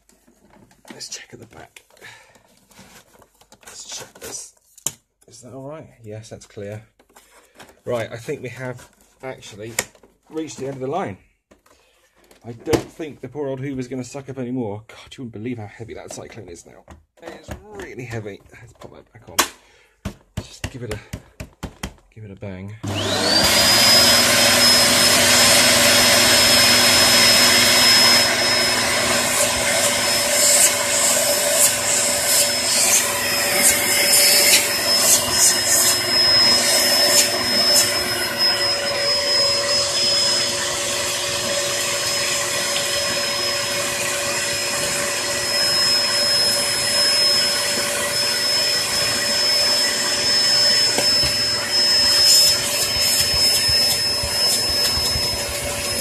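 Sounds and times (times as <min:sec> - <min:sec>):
vacuum cleaner motor whining: 0:22.8 - 0:56.0.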